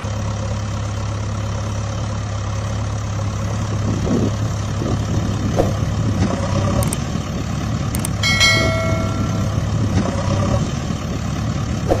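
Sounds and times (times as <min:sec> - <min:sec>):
low engine-like hum: 0:00.0 - 0:12.0
metallic ring: 0:08.2 - 0:09.9.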